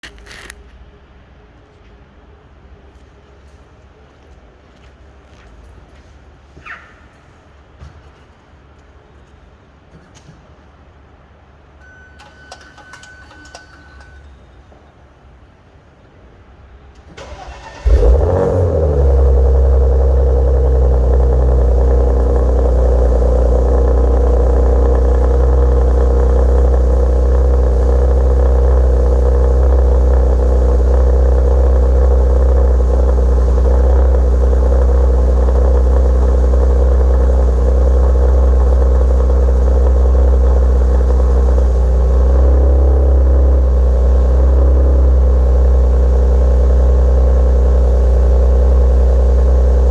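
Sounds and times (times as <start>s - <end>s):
car engine cranking: 17.1s - 49.9s
car engine revving and idling: 17.2s - 49.9s.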